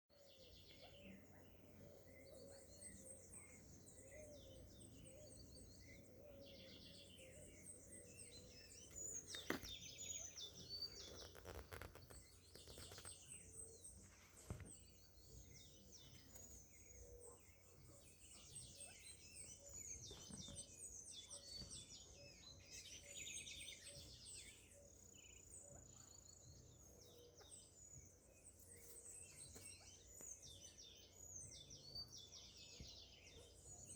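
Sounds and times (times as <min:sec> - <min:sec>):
birds chirping: 0:00.1 - 0:33.9.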